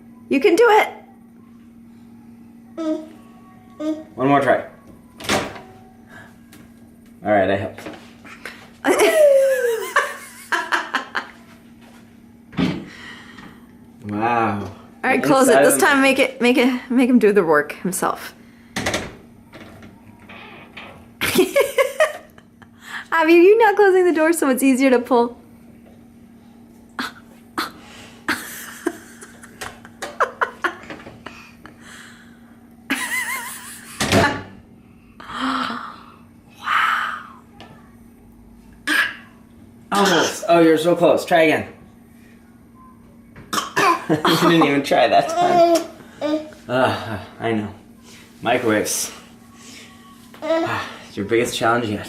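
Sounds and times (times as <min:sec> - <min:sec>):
person laughing: 0:08.8 - 0:11.4, 0:21.2 - 0:22.7, 0:27.0 - 0:31.8, 0:32.9 - 0:34.0, 0:44.1 - 0:44.8
person exclaiming delightedly: 0:08.9 - 0:09.9.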